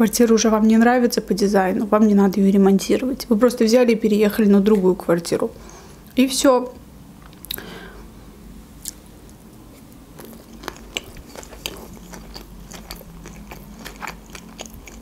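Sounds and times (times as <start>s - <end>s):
person chewing: 9.7s - 15.0s.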